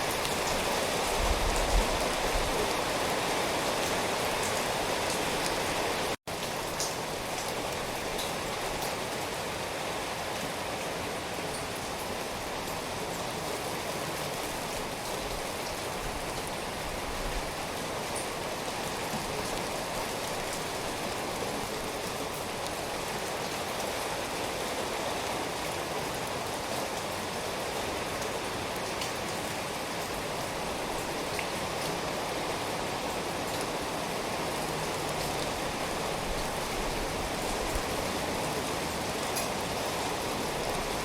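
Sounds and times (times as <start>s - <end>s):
steady rainfall hiss: 0.0s - 41.0s
faint ticks of raindrops: 6.3s - 9.4s, 14.2s - 41.0s.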